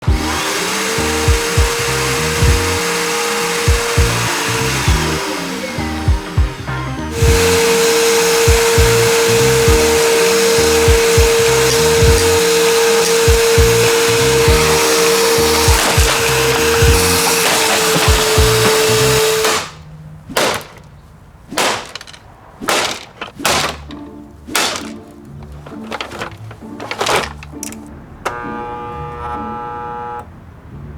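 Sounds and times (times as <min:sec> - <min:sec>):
electronic music: 0:00.0 - 0:02.7, 0:03.7 - 0:07.8, 0:13.3 - 0:19.2
smashing blows on plastic: 0:00.0 - 0:05.4, 0:06.1 - 0:27.8
vacuum cleaner whining: 0:00.0 - 0:19.8, 0:24.8 - 0:30.3
steady dense hiss: 0:00.0 - 0:19.9
kick drum thumps: 0:00.1 - 0:00.3, 0:01.3 - 0:01.8, 0:02.4 - 0:02.7, 0:03.7 - 0:04.2, 0:04.9 - 0:05.1, 0:06.1 - 0:06.6, 0:07.2 - 0:07.6, 0:08.5 - 0:09.0, 0:09.6 - 0:09.9, 0:10.9 - 0:11.4, 0:12.0 - 0:12.4, 0:13.3 - 0:13.8, 0:14.4 - 0:14.7, 0:15.7 - 0:16.2, 0:16.8 - 0:17.1, 0:18.1 - 0:18.7.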